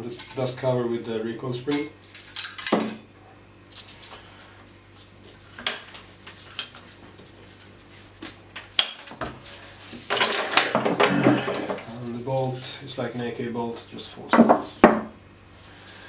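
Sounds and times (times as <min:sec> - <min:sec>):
metal on metal rattle: 0:10.1 - 0:11.9.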